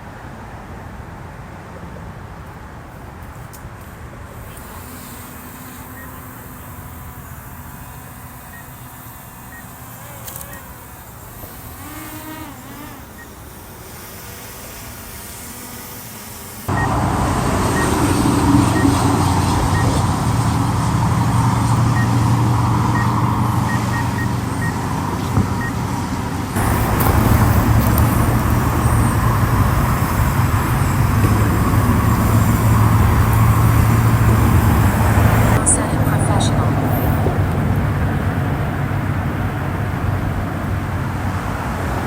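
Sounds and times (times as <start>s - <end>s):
drone propellers buzzing: 3.2s - 42.0s.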